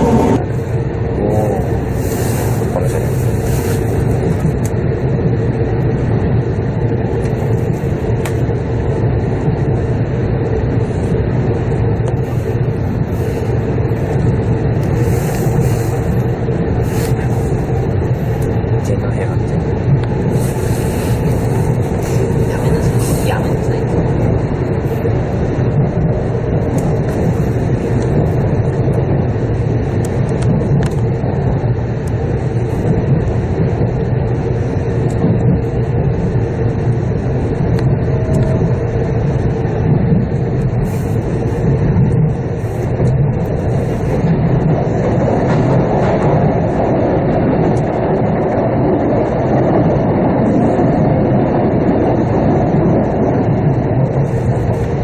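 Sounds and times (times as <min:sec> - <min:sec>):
faint hum: 0:00.0 - 0:55.0
train wheels rumbling on rails: 0:00.0 - 0:55.0.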